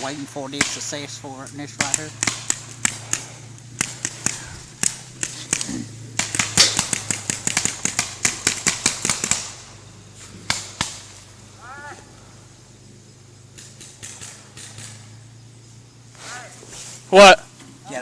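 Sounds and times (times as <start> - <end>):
paintball markers firing: 0.0 - 9.8, 10.4 - 11.2, 13.5 - 15.2
low steady hum: 0.0 - 18.0.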